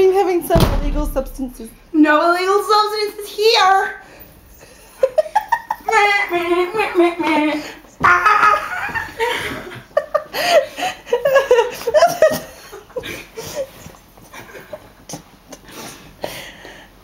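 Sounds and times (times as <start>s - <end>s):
young people laughing: 4.9s - 13.6s.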